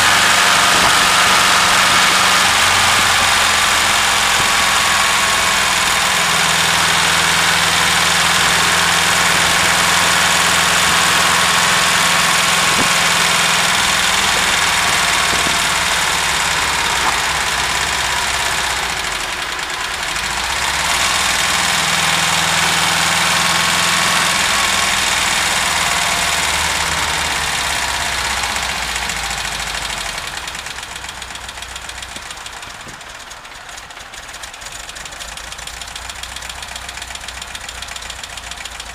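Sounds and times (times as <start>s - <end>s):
engine running with knocking: 0.0s - 38.9s.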